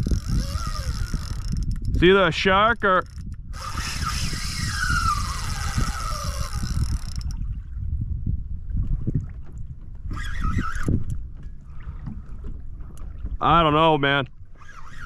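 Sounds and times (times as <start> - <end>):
low wind rumble: 0.0 - 15.0
water sloshing: 8.7 - 13.6.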